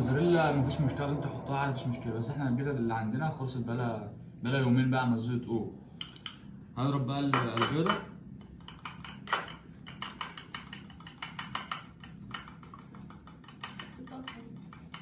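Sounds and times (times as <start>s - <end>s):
egg beaten in a bowl: 7.8s - 15.0s.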